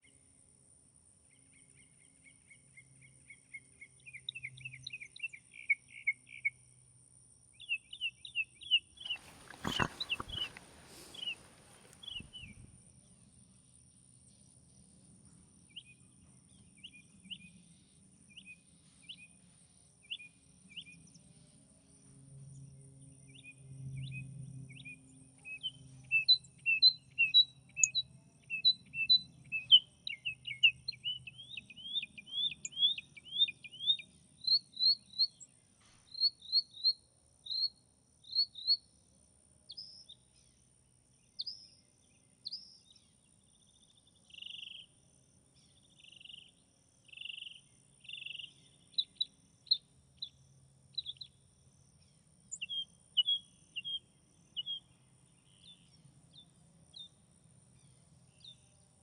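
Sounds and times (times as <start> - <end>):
bird chirping: 9.1 - 12.6, 52.0 - 57.2
raspy bird calls: 9.1 - 12.6.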